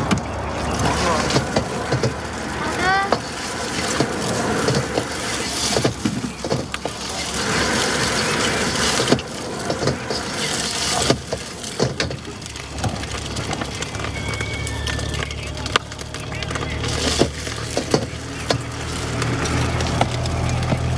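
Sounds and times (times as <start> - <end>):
stir-fry sizzling: 0.0 - 20.9
spatula scraping metal wok: 0.9 - 12.6.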